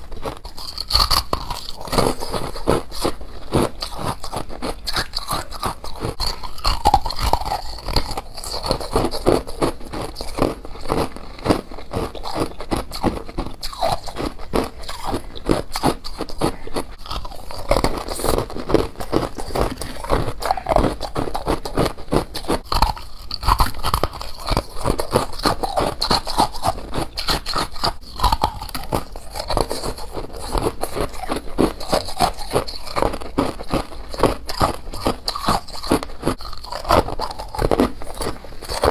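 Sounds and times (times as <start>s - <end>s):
crunchy chewing: 0.0s - 38.9s.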